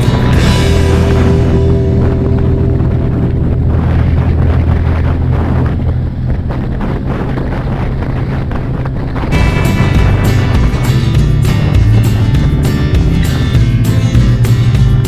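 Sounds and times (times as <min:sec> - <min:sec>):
music: 0:00.0 - 0:05.7, 0:09.3 - 0:15.0
engine running steadily: 0:00.0 - 0:15.0
wind buffeting microphone: 0:00.0 - 0:15.0.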